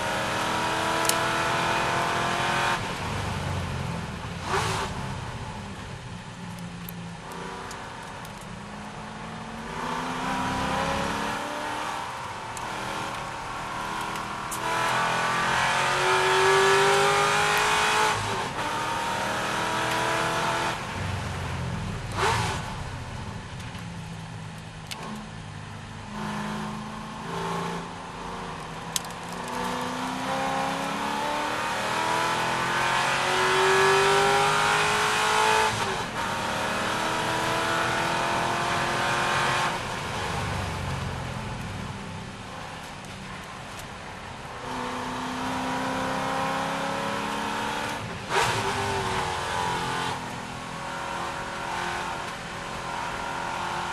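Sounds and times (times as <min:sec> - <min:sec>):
racing car engine accelerating: 0:00.0 - 0:02.9, 0:09.4 - 0:20.9, 0:29.0 - 0:40.8, 0:44.6 - 0:53.9.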